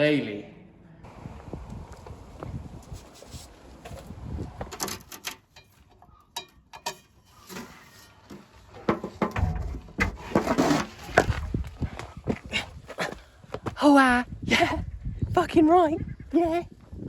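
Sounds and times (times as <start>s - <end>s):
tools and metal parts clinking: 4.7s - 8.1s.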